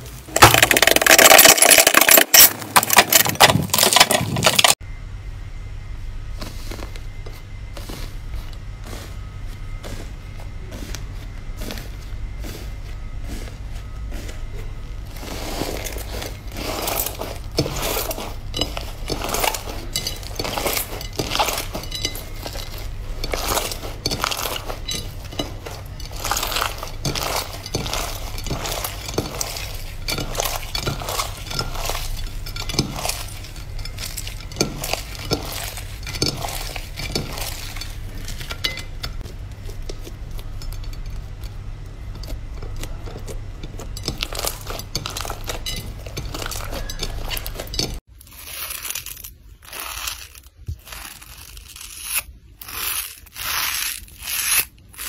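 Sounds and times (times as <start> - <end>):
steady low hum: 0.0 - 55.0
slime clicking and crackling: 15.9 - 40.6, 41.2 - 55.0.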